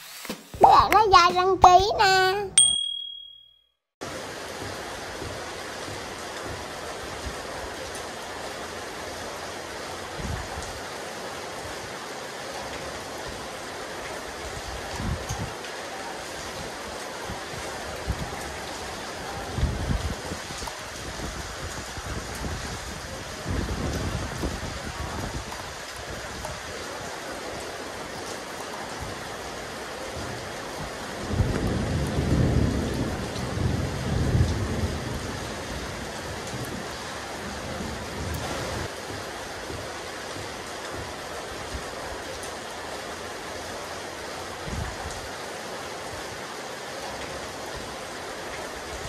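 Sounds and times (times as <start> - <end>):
steady rain hissing: 0.0 - 2.4, 4.0 - 49.0
wind rumble on microphone: 10.0 - 10.8, 14.4 - 15.6, 16.6 - 26.9, 30.2 - 41.9, 44.6 - 45.3
low thunder rumble: 31.2 - 38.9.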